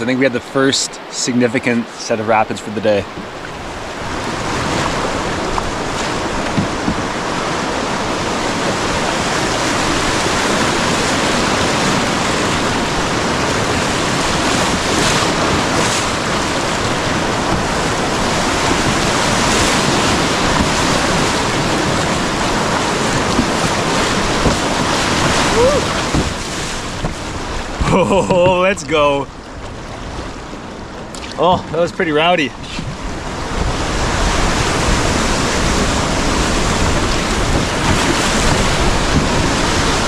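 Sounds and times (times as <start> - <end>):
whitewater rushing: 0.0 - 40.0.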